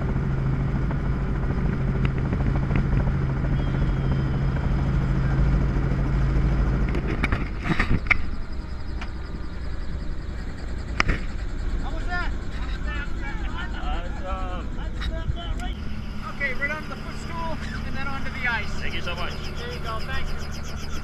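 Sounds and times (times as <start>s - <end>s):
helicopter engine and rotor hum: 0.0s - 21.0s
sharp knocks and clatter: 6.8s - 8.3s.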